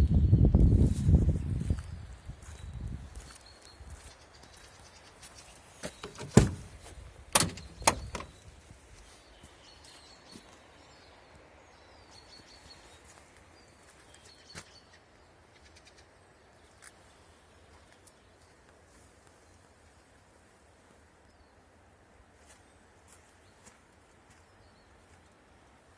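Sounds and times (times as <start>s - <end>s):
birds chirping faintly: 1.6s - 20.2s
van doors clunking: 5.8s - 8.4s.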